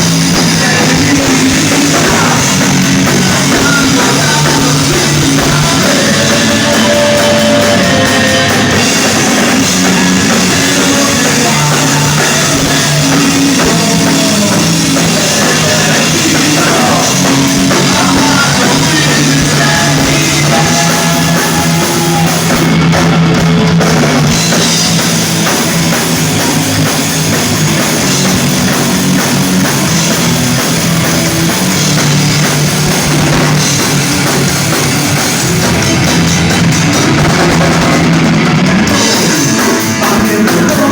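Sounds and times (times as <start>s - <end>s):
drum kit: 0.0s - 40.9s
rock band playing live: 0.0s - 40.9s.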